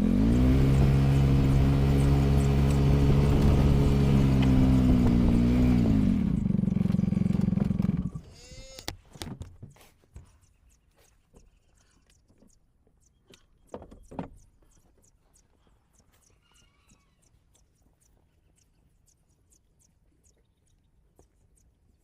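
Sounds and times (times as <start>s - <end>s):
farm vehicle engine revving: 0.0s - 8.4s.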